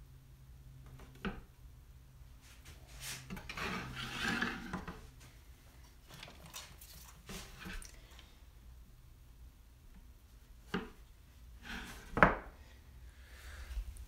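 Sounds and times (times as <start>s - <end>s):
objects scraping and rubbing: 2.4s - 7.9s, 11.6s - 12.3s.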